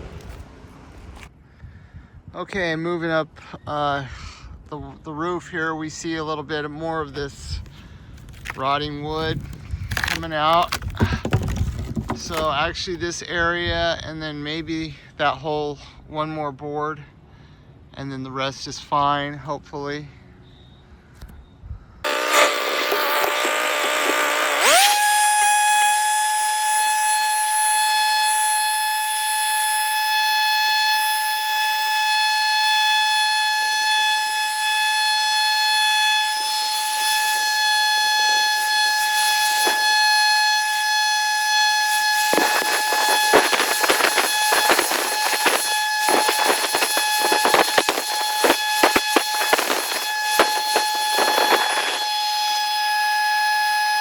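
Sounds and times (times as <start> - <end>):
power tool motor whine: 8.2 - 8.6, 9.2 - 12.5, 22.1 - 54.0.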